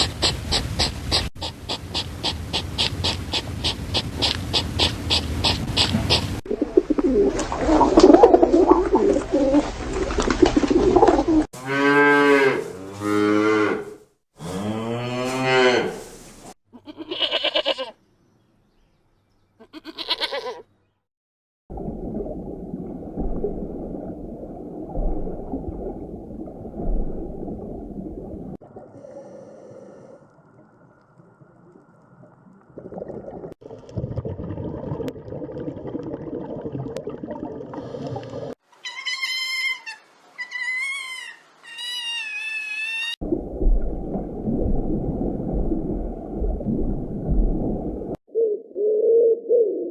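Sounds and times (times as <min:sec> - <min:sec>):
low noisy farmyard sound: 0:19.5 - 0:20.7.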